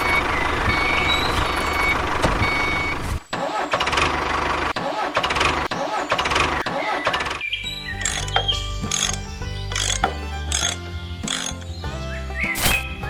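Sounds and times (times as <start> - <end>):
mini tractor engine running: 8.0 - 11.7.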